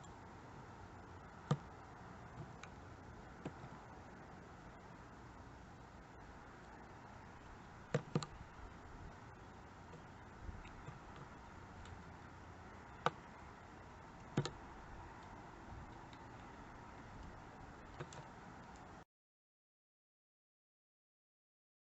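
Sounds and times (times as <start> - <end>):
woodpecker pecking at wood: 7.8 - 8.6, 9.8 - 12.1, 12.9 - 13.3, 14.1 - 18.9.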